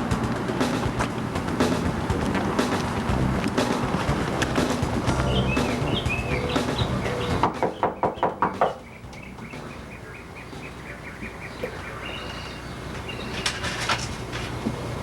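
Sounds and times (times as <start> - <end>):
bird chirping high notes: 4.2 - 13.5
knocking on a door: 7.4 - 8.8.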